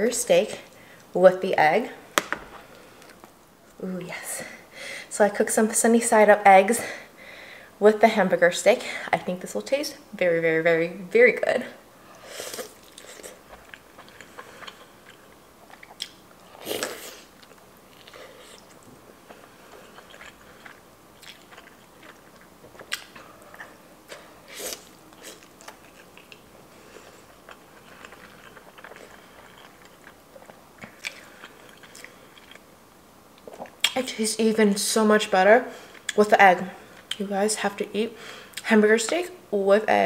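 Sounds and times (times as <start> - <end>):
close chewing of soft food: 12.1 - 34.0.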